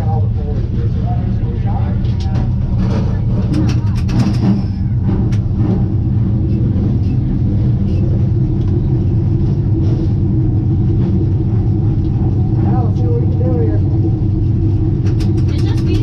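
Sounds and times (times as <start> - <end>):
race car engine idling: 0.0 - 16.0.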